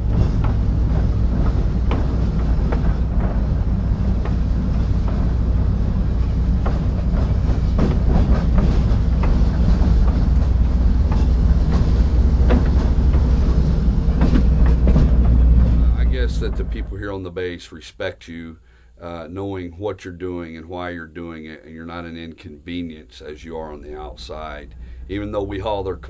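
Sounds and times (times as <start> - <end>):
train wheels clanking on rails: 0.0 - 17.2
locomotive rumble: 0.0 - 17.5, 21.2 - 26.0.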